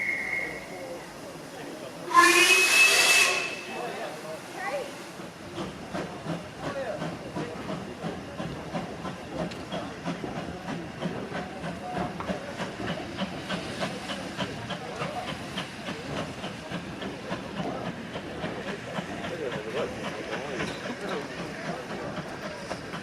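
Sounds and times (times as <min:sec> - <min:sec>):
steam hissing: 0:00.0 - 0:23.0.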